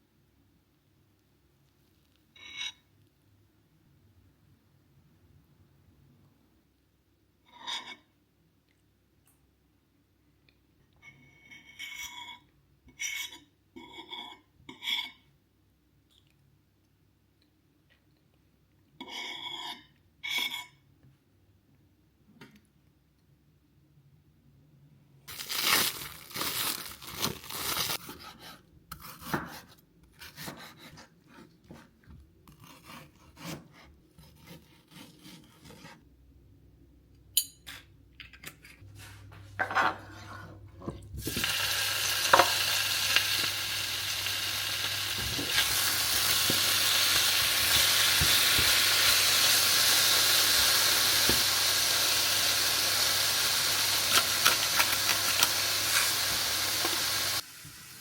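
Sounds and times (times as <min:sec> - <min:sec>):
food sizzling in a pan: 0:41.2 - 0:58.0.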